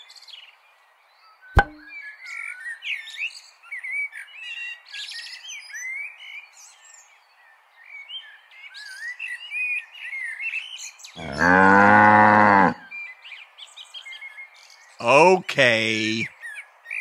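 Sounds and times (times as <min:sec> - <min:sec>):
cow mooing: 0:11.2 - 0:12.9.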